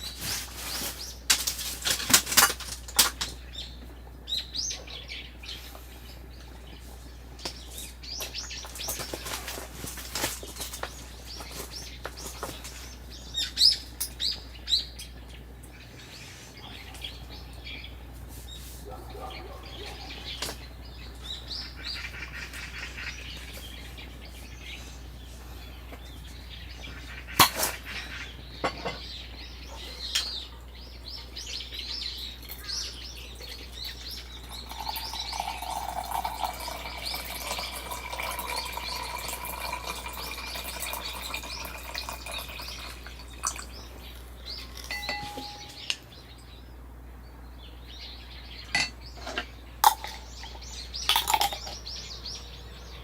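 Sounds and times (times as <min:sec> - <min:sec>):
small birds chirping: 0:00.0 - 0:02.1, 0:02.8 - 0:53.0.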